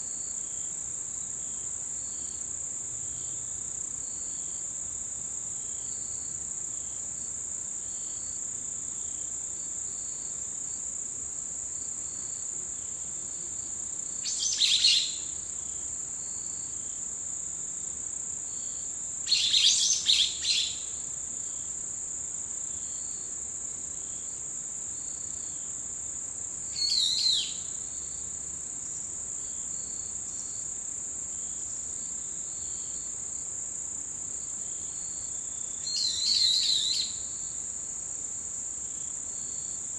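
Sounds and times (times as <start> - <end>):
faint insect chirping: 0.0 - 39.9
high unbroken insect trill: 14.1 - 17.0, 17.8 - 21.8, 26.4 - 37.7.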